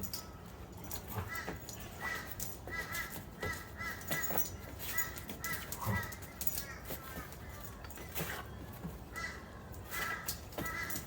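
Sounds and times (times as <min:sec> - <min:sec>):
dogs scuffling and thudding: 0:00.0 - 0:11.0
crow cawing: 0:01.3 - 0:04.4, 0:05.0 - 0:06.8, 0:09.1 - 0:11.0.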